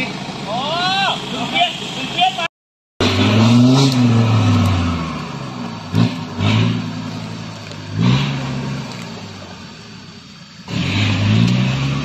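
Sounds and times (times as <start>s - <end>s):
off-road engine revving under load: 3.0s - 12.0s.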